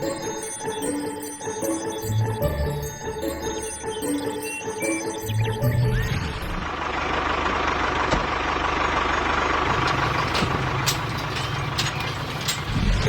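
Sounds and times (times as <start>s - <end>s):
sharp clicks and knocks: 9.6s - 13.0s.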